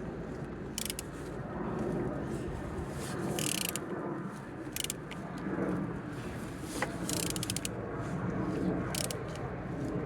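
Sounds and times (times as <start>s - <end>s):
wrench ratchet clicks: 0.8s - 1.1s, 3.4s - 3.8s, 7.1s - 7.7s, 9.0s - 9.2s.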